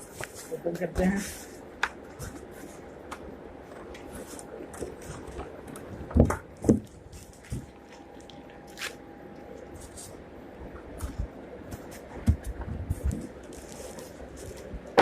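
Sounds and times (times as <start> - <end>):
packaging rustling: 10.9 - 15.0.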